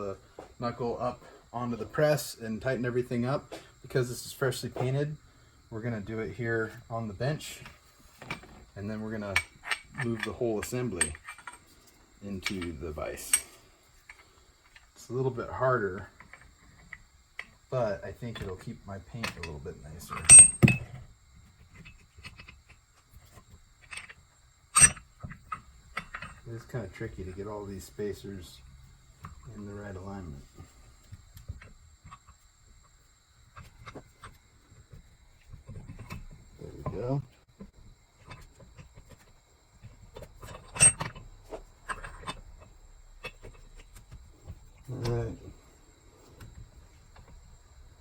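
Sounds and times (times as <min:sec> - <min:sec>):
metal tool parts clinking: 0:09.3 - 0:11.6
metal parts knocking together: 0:09.3 - 0:11.7, 0:20.1 - 0:21.0, 0:23.4 - 0:26.5, 0:38.2 - 0:44.2.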